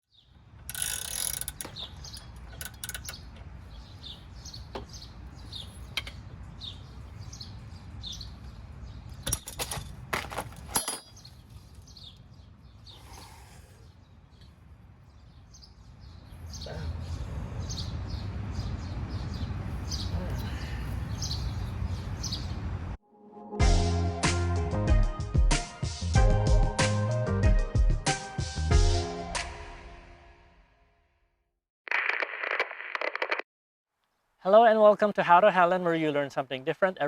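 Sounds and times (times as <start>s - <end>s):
small birds chirping: 0.1s - 9.4s, 11.0s - 22.8s.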